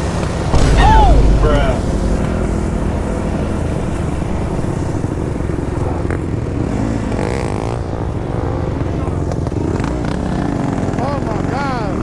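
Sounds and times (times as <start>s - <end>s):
dirt bike engine running: 0.0s - 12.0s
wind buffeting microphone: 0.4s - 7.1s.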